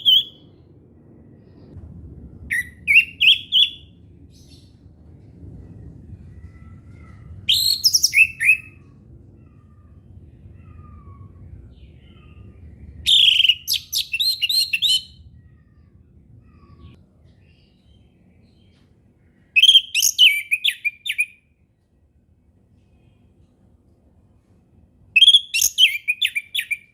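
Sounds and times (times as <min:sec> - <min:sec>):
thrush singing whistled trills: 0:00.0 - 0:00.4, 0:02.5 - 0:04.7, 0:07.5 - 0:08.8, 0:11.8 - 0:15.2, 0:19.6 - 0:21.4, 0:25.2 - 0:26.9
distant bird calls: 0:00.0 - 0:01.8, 0:02.5 - 0:04.8, 0:06.2 - 0:21.5.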